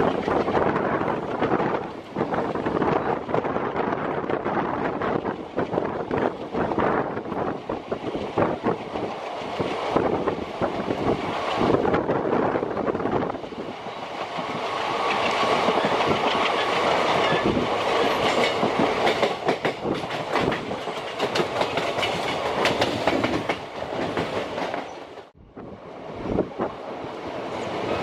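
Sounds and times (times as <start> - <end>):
train running noise and wind: 0.0 - 28.0
wheels clicking over rail joints: 14.2 - 25.3.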